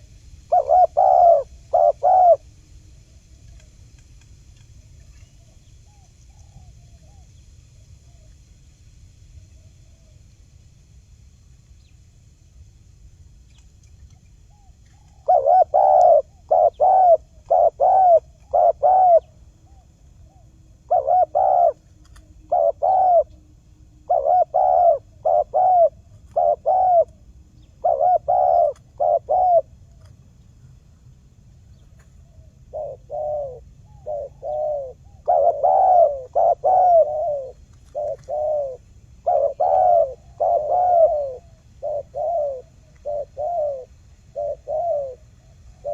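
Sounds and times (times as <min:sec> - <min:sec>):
dove cooing: 0:00.0 - 0:02.5, 0:14.5 - 0:30.1, 0:31.8 - 0:45.9.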